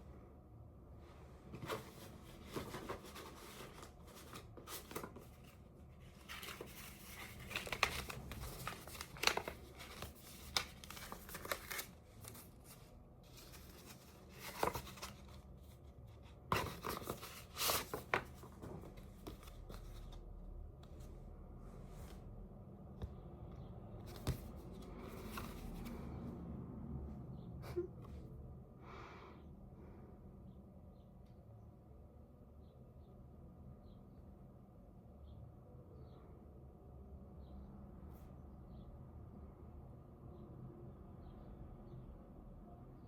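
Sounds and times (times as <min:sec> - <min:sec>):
rustling and crinkling: 0:01.2 - 0:20.2, 0:24.0 - 0:26.0.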